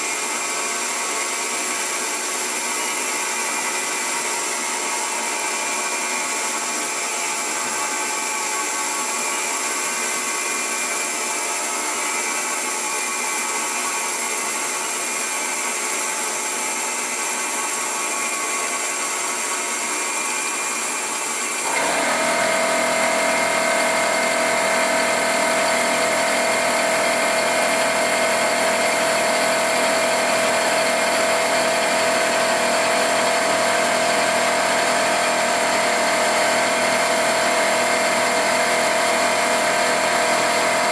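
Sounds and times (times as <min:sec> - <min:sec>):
milling machine whine: 0:00.0 - 0:40.9.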